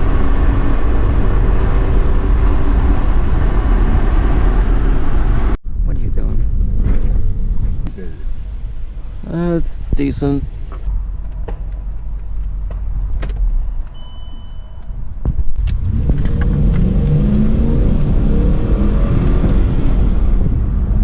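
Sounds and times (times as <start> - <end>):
car engine accelerating: 0.0 - 9.9, 15.6 - 21.0.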